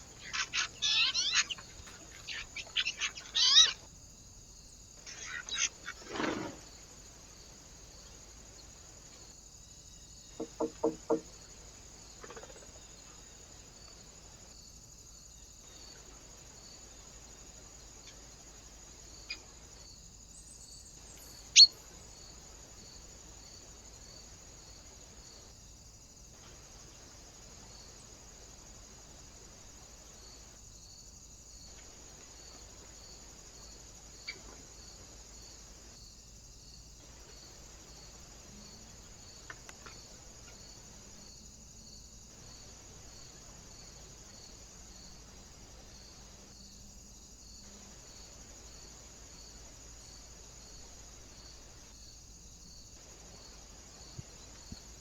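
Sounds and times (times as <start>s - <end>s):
faint high hiss: 0.0s - 55.0s
quick harsh calls: 0.1s - 3.9s
sharp taps or knocks: 10.4s - 11.3s.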